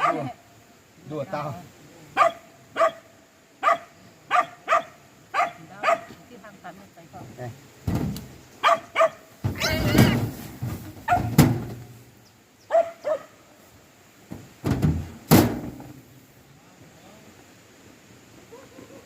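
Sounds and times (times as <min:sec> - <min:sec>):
dog barking: 0:00.0 - 0:00.4, 0:02.2 - 0:06.2, 0:08.6 - 0:09.3, 0:11.1 - 0:11.4, 0:12.7 - 0:13.4, 0:18.5 - 0:19.0
knocks: 0:14.3 - 0:15.9.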